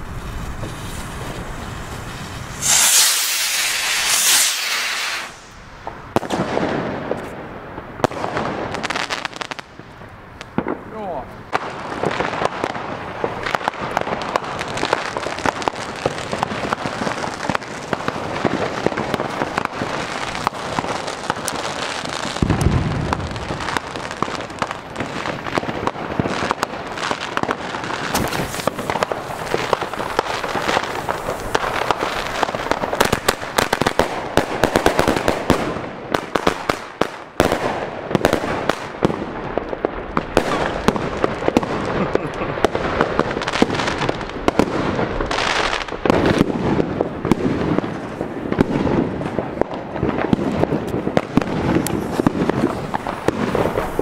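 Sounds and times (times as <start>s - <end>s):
fireworks banging and crackling: 0.0s - 54.0s
deep firework thump: 28.1s - 32.0s.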